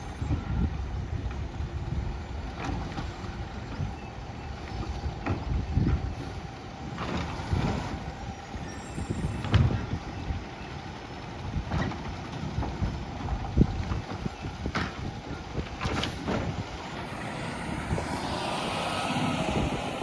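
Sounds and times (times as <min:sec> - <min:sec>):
garbage truck engine running: 0:10.0 - 0:20.0
hisses: 0:15.9 - 0:20.0
steady thin tone: 0:16.7 - 0:20.0.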